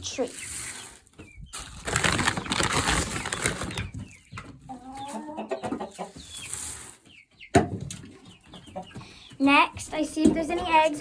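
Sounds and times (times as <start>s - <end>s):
chickens clucking: 0.0s - 11.0s
rustling: 0.6s - 4.0s.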